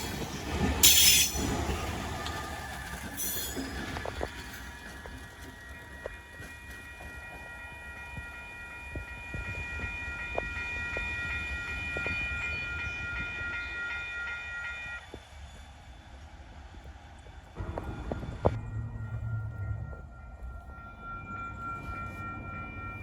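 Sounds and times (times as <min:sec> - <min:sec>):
wheels clicking on rails: 0:00.0 - 0:11.2
train rumbling past: 0:00.0 - 0:23.0
steady high-pitched tone: 0:17.6 - 0:23.0.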